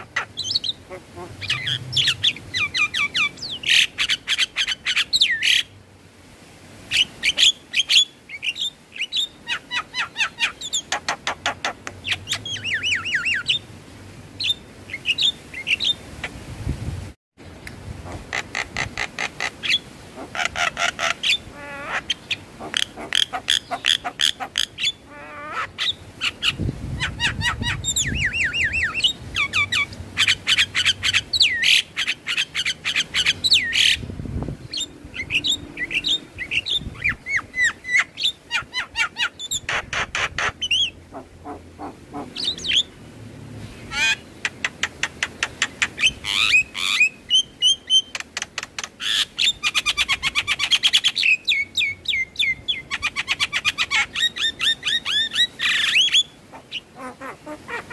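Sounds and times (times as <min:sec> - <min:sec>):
bird singing: 0:01.4 - 0:05.6, 0:34.7 - 0:38.4.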